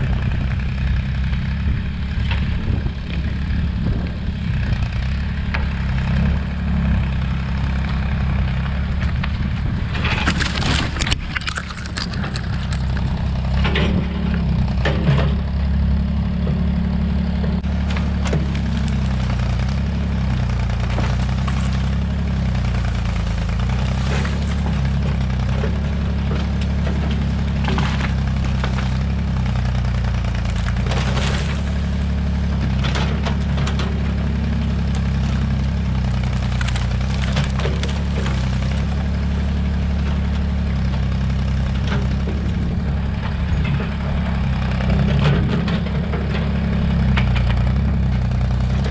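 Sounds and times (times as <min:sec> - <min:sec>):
tractor engine running under load: 0:00.0 - 0:48.9
wood snapping: 0:07.0 - 0:15.2, 0:17.6 - 0:42.6.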